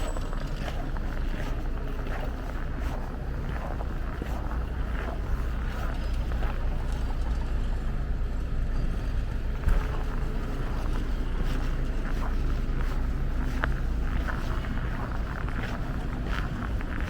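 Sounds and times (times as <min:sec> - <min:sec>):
footsteps crunching in snow: 0:00.0 - 0:07.9, 0:08.9 - 0:17.0
wind rumbling on microphone: 0:00.0 - 0:17.0.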